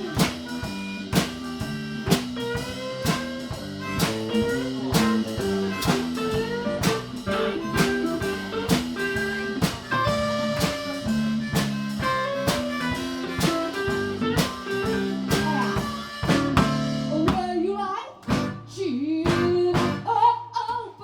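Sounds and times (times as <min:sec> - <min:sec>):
lead guitar solo: 0:00.0 - 0:17.2
blues band playing: 0:00.0 - 0:20.2
sharp drum hit: 0:03.0 - 0:17.5.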